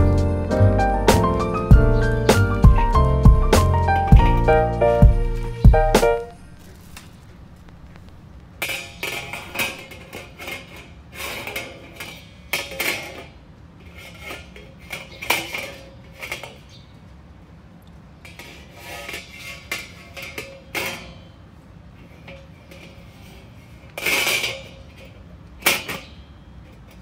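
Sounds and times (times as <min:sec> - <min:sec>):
metal camping gear clanking: 0:00.0 - 0:13.4.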